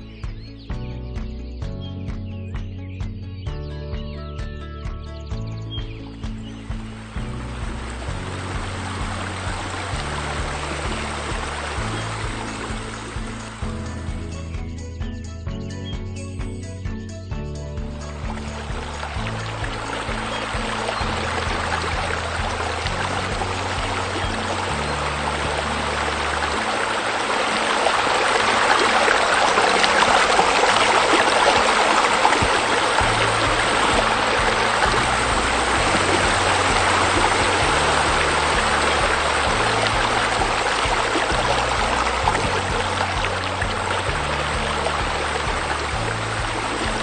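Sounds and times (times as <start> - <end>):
background music with low bass: 0.0 - 47.0
waterfall rushing and splashing: 6.6 - 13.7, 18.1 - 47.0.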